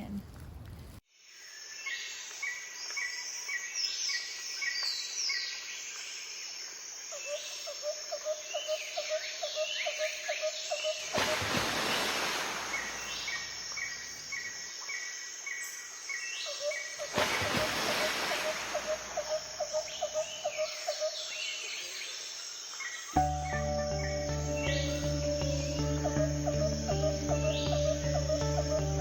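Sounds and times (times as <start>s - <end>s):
bird chirping: 22.8s - 29.0s
rising whistled bird notes: 23.2s - 29.0s.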